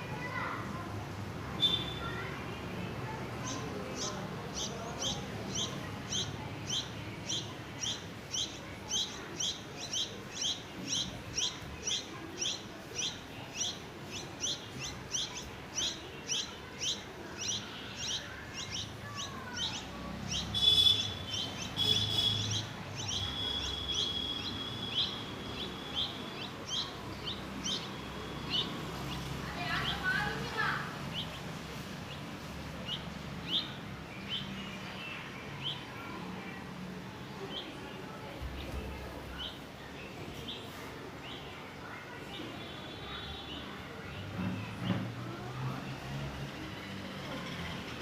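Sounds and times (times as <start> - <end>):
small birds chirping: 1.5 - 44.8
high-pitched bird calling: 3.5 - 28.8.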